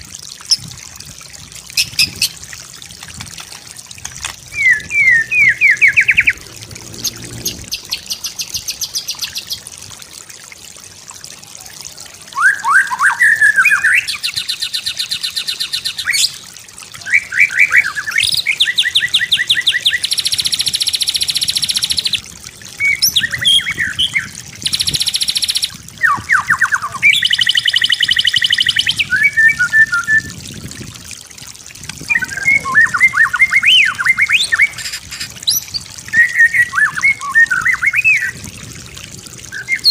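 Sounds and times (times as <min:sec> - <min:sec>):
songbird singing whistles and trills: 0:04.5 - 0:06.4, 0:12.3 - 0:16.4, 0:17.0 - 0:22.2, 0:22.8 - 0:30.4, 0:32.0 - 0:38.4, 0:39.5 - 0:39.9.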